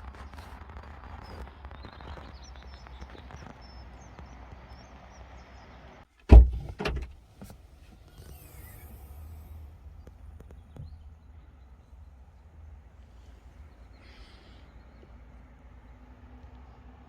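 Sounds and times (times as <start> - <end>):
loud thuds: 6.2 - 7.2.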